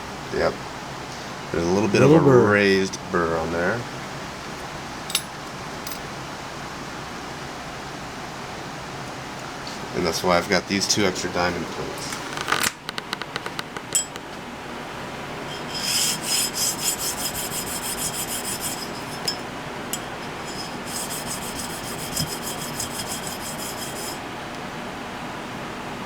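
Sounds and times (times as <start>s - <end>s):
knife scraping on sharpening plate: 15.5s - 24.2s.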